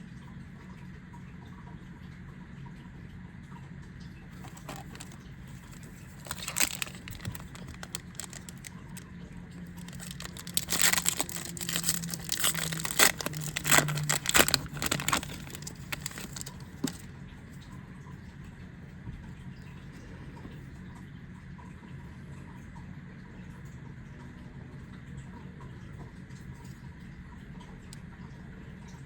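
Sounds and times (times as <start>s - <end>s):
foil pack crinkling and tearing: 4.4s - 9.0s, 9.6s - 17.1s.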